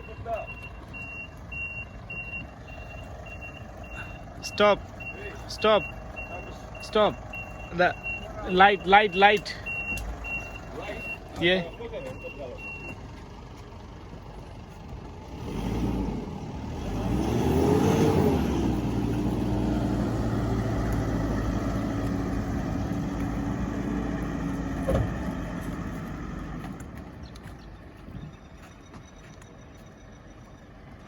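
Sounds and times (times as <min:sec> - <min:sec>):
vehicle engine revving: 0:14.9 - 0:27.5.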